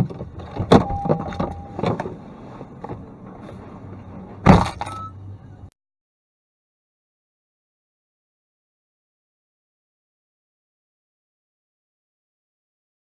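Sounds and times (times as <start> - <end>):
vehicle collision bangs and crunches: 0.0 - 5.3
low engine hum: 0.0 - 5.7.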